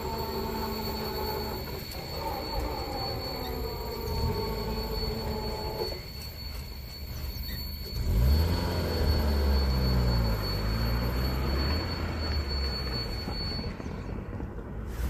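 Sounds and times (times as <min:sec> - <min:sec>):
car engine accelerating: 0:07.8 - 0:15.0.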